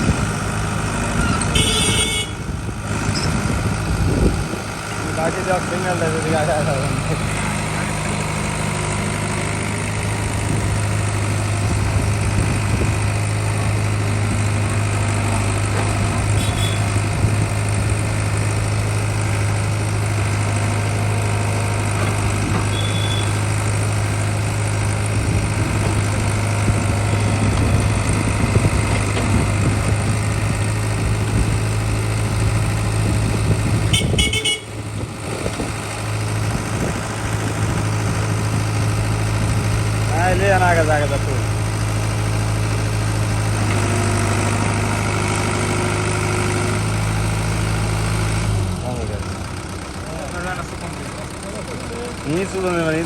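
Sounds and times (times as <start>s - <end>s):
heavy diesel engine running: 0.0s - 53.0s
short high vehicle horn toots: 1.3s - 2.5s, 16.3s - 17.0s, 22.7s - 23.4s, 33.9s - 34.8s.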